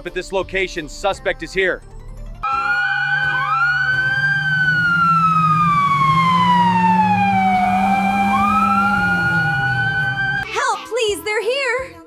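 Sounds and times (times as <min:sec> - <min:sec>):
police siren wailing: 0:02.4 - 0:10.5.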